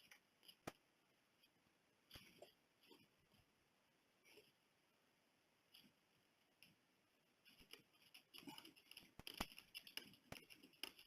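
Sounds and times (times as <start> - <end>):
scattered clicks and knocks: 7.4 - 11.0.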